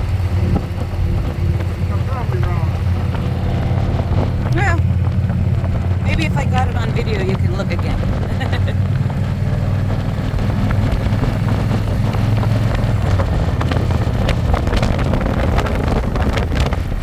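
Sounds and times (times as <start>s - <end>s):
motorcycle engine running: 0.0s - 17.0s
wind noise on microphone: 0.0s - 17.0s.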